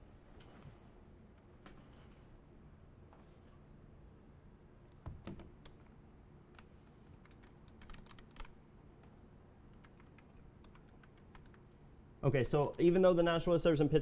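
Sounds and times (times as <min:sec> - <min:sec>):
computer keyboard typing: 0:06.5 - 0:09.1, 0:09.7 - 0:11.7.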